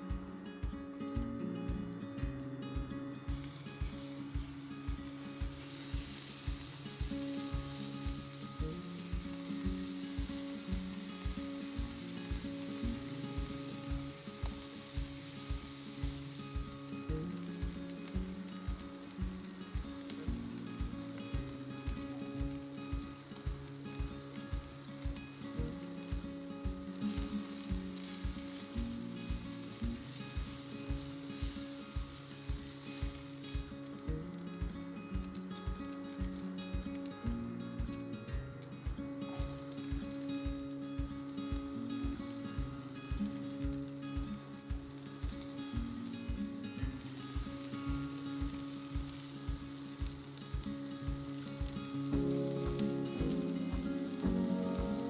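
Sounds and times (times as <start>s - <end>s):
acoustic folk instrumental music: 0.0s - 55.0s
chicken sizzling in a pan: 3.3s - 55.0s
spatula stirring in a pan: 27.4s - 28.7s.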